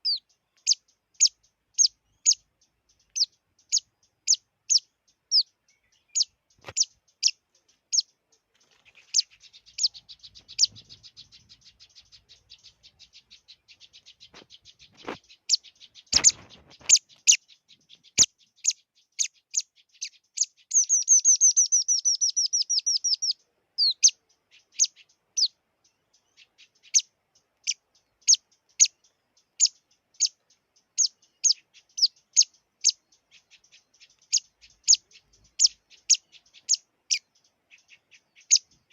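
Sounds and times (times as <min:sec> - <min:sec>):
songbird chirping: 0:00.0 - 0:38.9.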